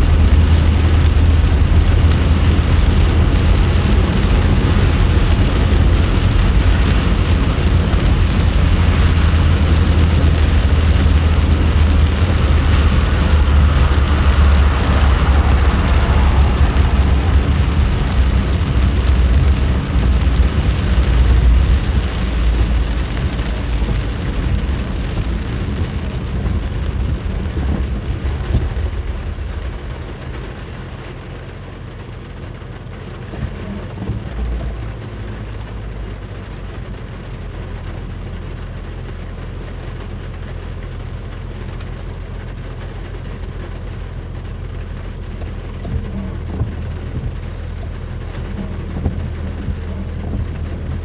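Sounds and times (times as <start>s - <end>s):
thunder rumbling: 0.0s - 31.5s, 45.5s - 51.0s
heavy rain hiss: 0.0s - 32.5s, 42.2s - 51.0s
car driving drone: 0.0s - 38.8s, 39.5s - 51.0s.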